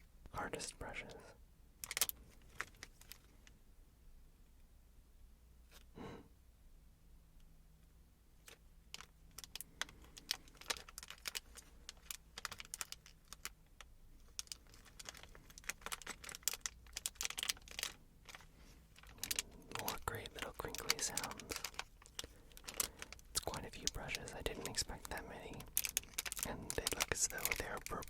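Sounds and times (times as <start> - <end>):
plastic wrapping crinkling: 1.8 - 3.5, 8.5 - 28.0.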